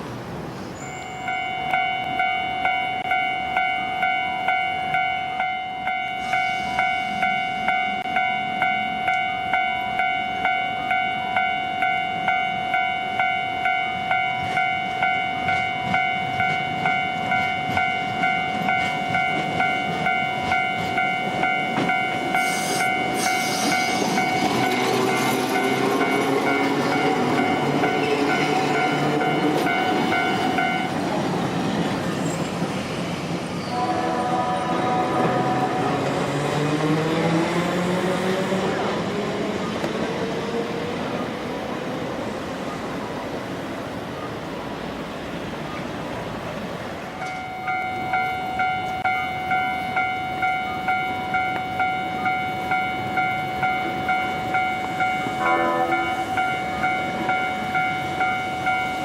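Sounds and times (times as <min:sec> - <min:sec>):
train passing: 0:00.0 - 0:59.0
level crossing warning bell ringing: 0:00.8 - 0:31.5, 0:47.2 - 0:59.0.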